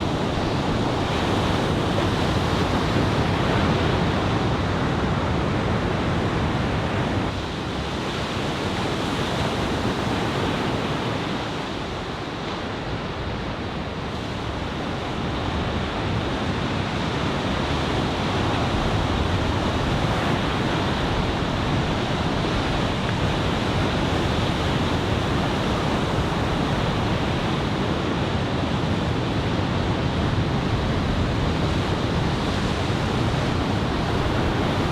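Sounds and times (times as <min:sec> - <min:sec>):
ocean surf breaking: 0:00.0 - 0:34.9
wind buffeting microphone: 0:00.0 - 0:34.9.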